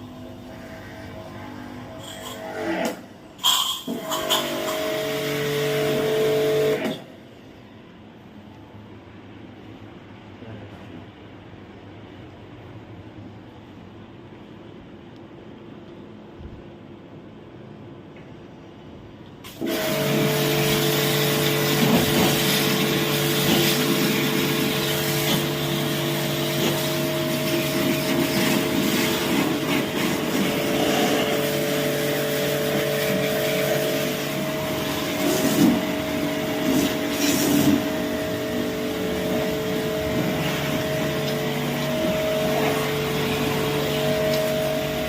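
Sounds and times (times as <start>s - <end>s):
water pump motor humming: 3.9s - 6.9s, 19.5s - 45.0s.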